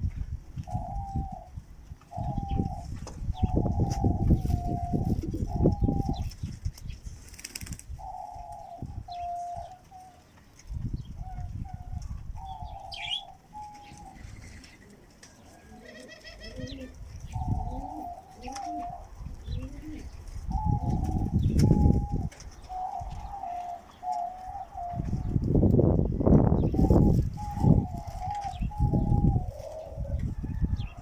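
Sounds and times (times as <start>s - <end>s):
pigeons cooing: 0.0s - 6.6s, 7.2s - 31.0s
small birds chirping: 2.1s - 15.6s, 26.4s - 31.0s.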